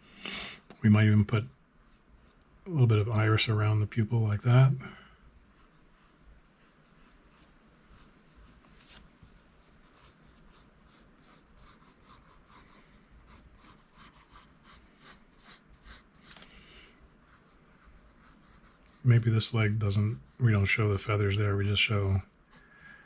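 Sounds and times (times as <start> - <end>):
pencil strokes on paper: 1.4 - 2.5, 5.4 - 9.0, 9.6 - 16.4, 17.0 - 22.8.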